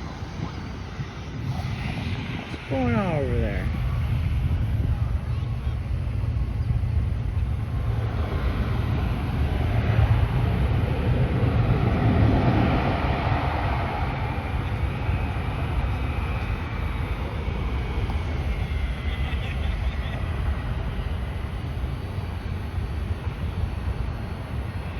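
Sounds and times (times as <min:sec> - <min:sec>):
faint high engine whine: 0:00.0 - 0:24.9
turboprop airliner passing by: 0:00.0 - 0:24.9
wind rumble on microphone: 0:00.0 - 0:24.9.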